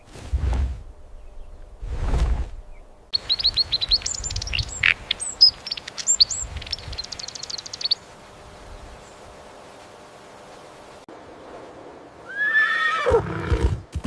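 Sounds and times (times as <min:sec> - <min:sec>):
brief whoosh: 0:00.1 - 0:01.0, 0:01.8 - 0:02.6
songbird chirping and trilling: 0:01.1 - 0:01.8, 0:02.6 - 0:09.3.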